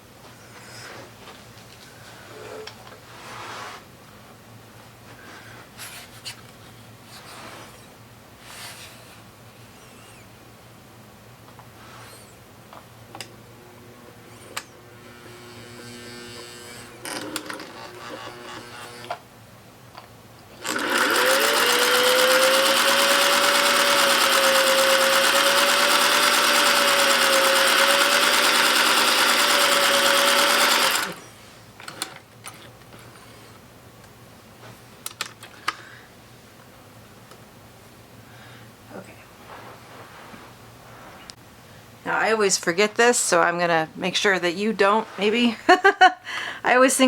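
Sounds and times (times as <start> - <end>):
sewing machine motor whine: 14.2 - 19.2, 20.6 - 31.3.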